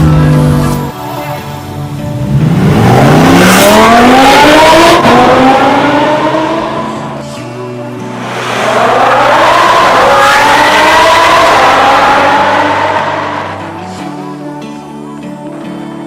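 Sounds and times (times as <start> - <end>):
background music: 0.0 - 16.0
sports car engine accelerating: 2.2 - 7.2, 7.9 - 13.9.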